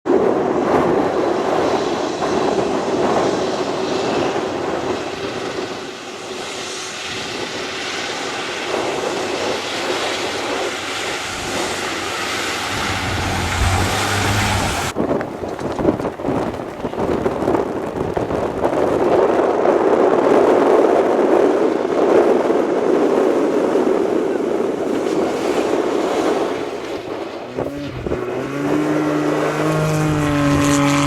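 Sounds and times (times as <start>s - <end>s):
truck engine and road noise: 0.1s - 31.0s
deep rumble: 7.3s - 19.0s.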